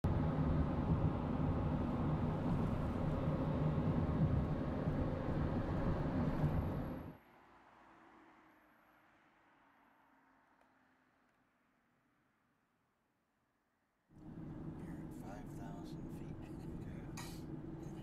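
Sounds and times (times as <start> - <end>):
low mechanical rumble: 0.0 - 7.2, 14.2 - 18.0.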